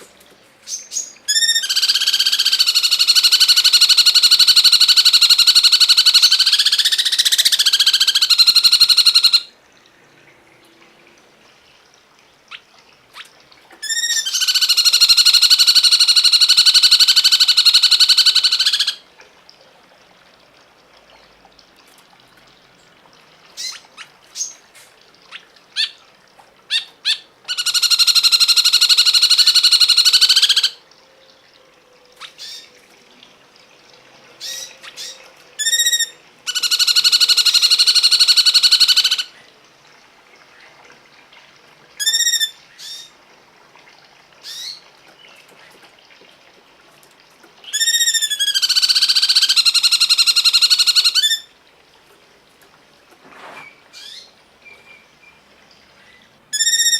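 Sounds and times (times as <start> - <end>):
bird harsh rattling calls: 26.7 - 30.8.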